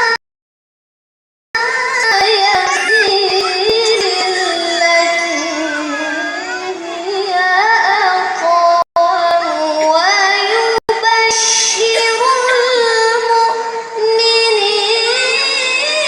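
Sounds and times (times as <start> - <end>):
child reciting melodically: 1.6 - 16.0.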